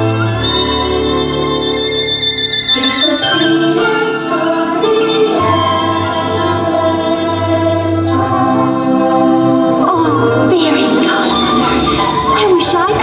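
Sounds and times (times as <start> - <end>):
orchestral music: 0.0 - 13.0
choir singing held chords: 2.8 - 13.0.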